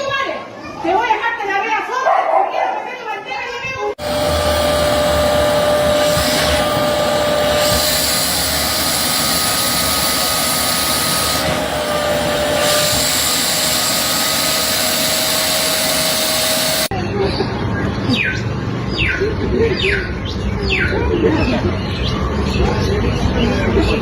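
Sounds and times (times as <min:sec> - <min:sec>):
machine rushing with whine: 0:04.0 - 0:16.9.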